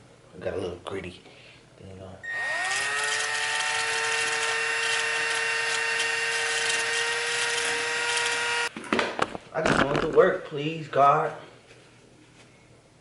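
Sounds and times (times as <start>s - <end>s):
power tool motor whine: 2.2s - 8.7s.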